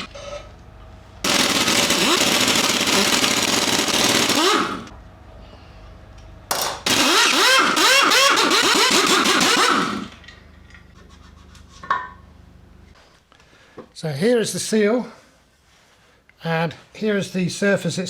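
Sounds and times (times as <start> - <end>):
impact wrench hammering bolts: 1.3 - 4.9, 6.5 - 10.2.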